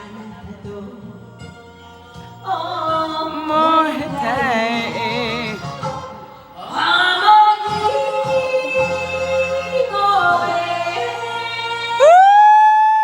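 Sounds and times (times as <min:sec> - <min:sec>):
person singing long held notes: 0:02.8 - 0:13.0.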